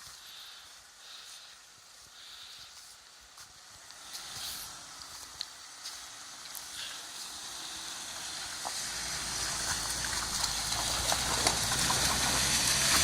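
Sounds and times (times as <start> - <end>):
tyres on gravel: 0.0 - 13.0
low engine hum: 3.6 - 13.0.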